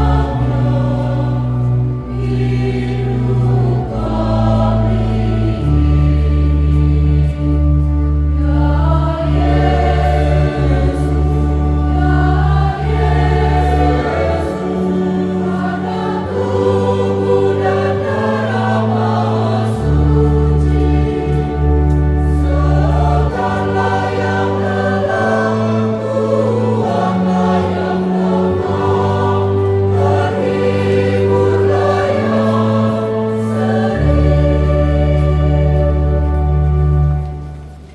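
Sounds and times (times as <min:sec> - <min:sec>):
choir singing a hymn: 0:00.0 - 0:37.9
long held bass notes: 0:00.0 - 0:37.9.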